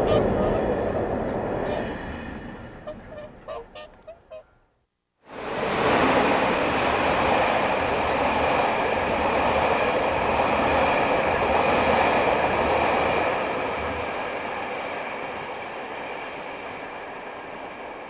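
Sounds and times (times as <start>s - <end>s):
train wheels rumbling on rail: 5.3s - 18.0s.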